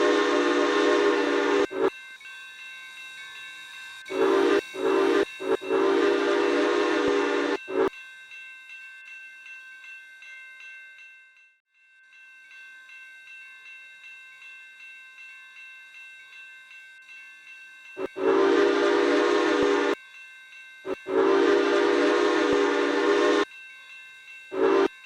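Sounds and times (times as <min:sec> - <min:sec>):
steam locomotive whistle: 0:00.0 - 0:01.9, 0:04.0 - 0:07.9, 0:18.0 - 0:20.0, 0:21.0 - 0:23.5, 0:24.5 - 0:24.9
bell ringing: 0:00.0 - 0:25.0.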